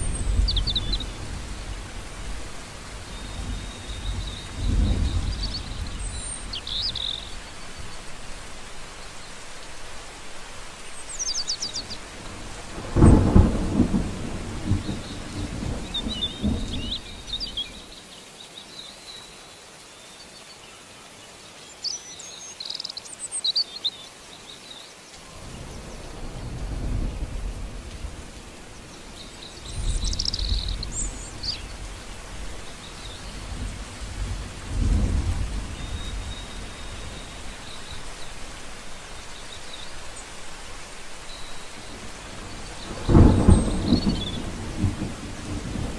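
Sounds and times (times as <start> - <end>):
thunder rumbling: 0.0 - 7.5, 11.8 - 17.9, 25.4 - 39.0, 41.7 - 45.9
rain falling on shrubs and grass: 0.0 - 45.9.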